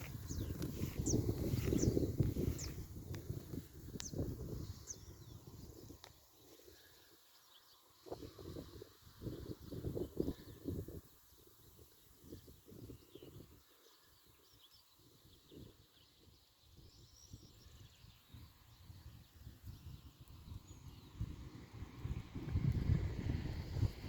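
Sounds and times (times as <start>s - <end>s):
wind rumbling on microphone: 0.0s - 6.9s, 8.0s - 13.8s, 15.0s - 24.0s.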